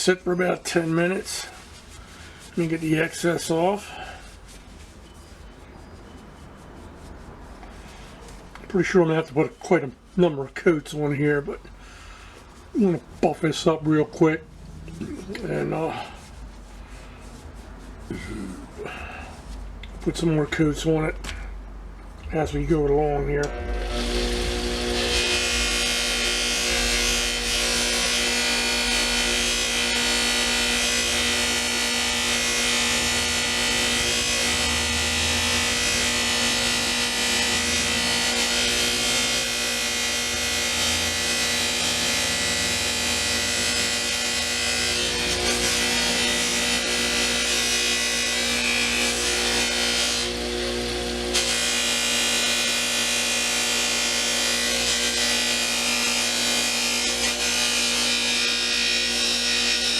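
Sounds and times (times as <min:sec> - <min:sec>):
buffing wheel hissing on metal: 0:23.4 - 0:58.6
power tool motor running: 0:23.4 - 0:59.9.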